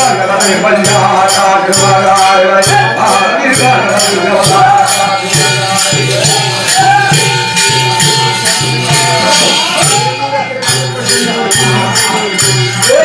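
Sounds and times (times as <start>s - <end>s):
drum beat: 0.0s - 13.0s
jingling hand percussion: 0.0s - 13.0s
person singing: 0.0s - 13.0s.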